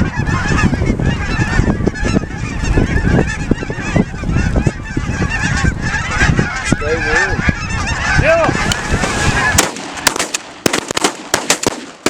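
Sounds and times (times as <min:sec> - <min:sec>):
geese honking: 0:00.0 - 0:10.8.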